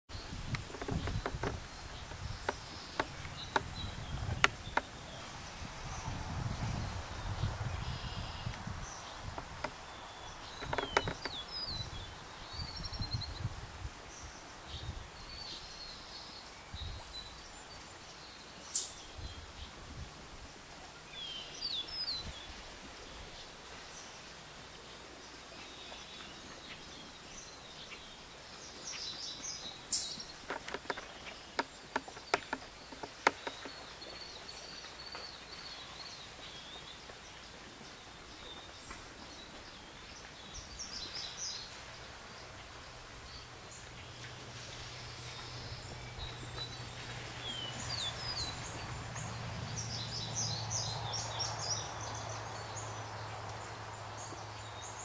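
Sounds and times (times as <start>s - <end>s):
small birds chirping: 0.1s - 6.2s, 7.2s - 13.4s, 25.6s - 55.0s
wind rumble on microphone: 0.1s - 15.6s, 16.6s - 17.7s, 19.0s - 20.8s, 21.9s - 23.4s
sharp clicks: 10.6s - 11.4s, 30.5s - 33.8s.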